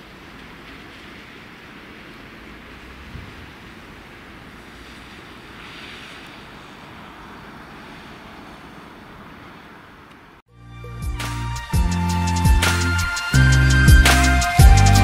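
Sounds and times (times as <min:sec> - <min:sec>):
distant train rumble and hiss: 0:00.0 - 0:10.4.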